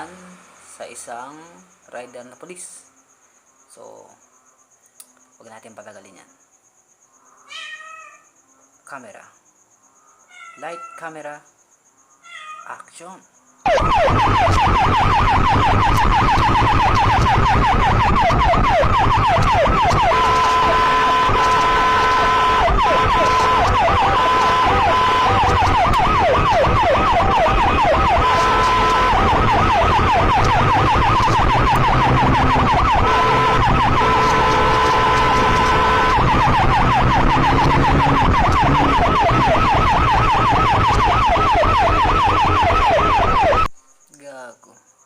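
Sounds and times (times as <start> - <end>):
motorcycle engine: 13.7 - 43.7
motorcycle siren: 13.7 - 43.7.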